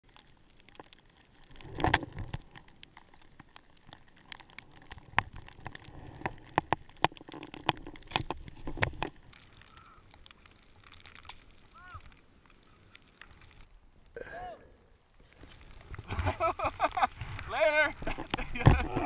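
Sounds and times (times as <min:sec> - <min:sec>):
skis scraping on snow: 0:15.1 - 0:19.0.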